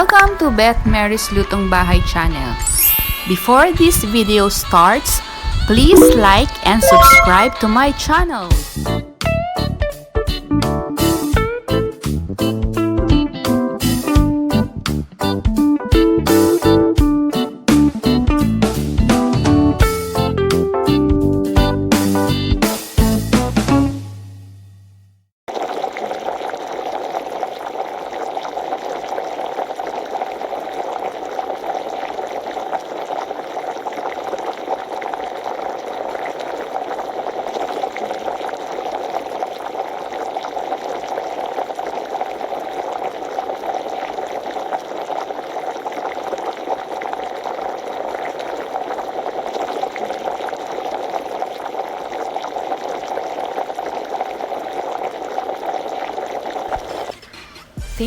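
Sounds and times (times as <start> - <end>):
stew bubbling in a pan: 25.5 - 57.8.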